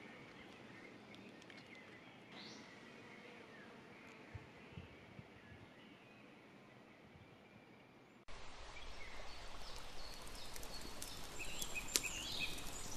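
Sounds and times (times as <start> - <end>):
faint outdoor ambience: 0.0 - 12.9
woodland hiss: 8.3 - 12.9
birds chirping: 8.8 - 12.9.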